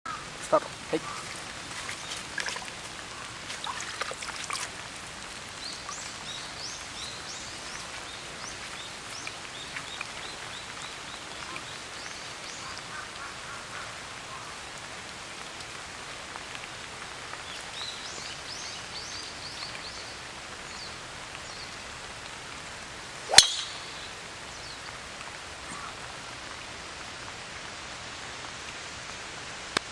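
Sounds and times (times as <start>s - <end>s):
heavy rain: 0.1s - 29.9s
golf club striking ball: 23.3s - 24.1s
birds chirping: 23.3s - 25.0s.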